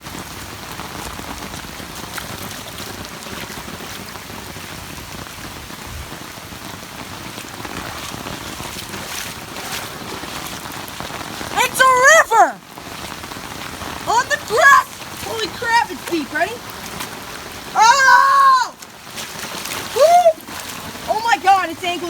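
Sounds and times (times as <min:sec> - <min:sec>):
heavy rain falling: 0:00.0 - 0:22.0
sharp raindrop hits: 0:00.0 - 0:22.0.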